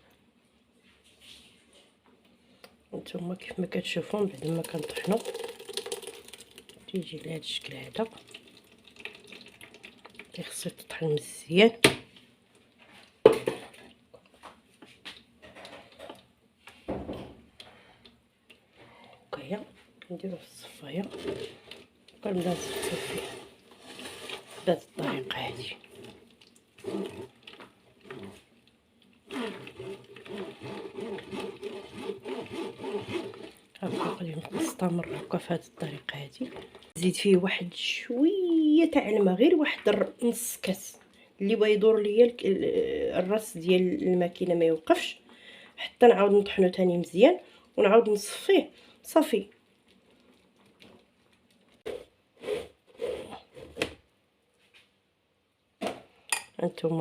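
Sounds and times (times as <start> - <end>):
pulp scraping through mesh strainer: 21.0 - 26.2, 26.8 - 28.5, 29.3 - 35.5.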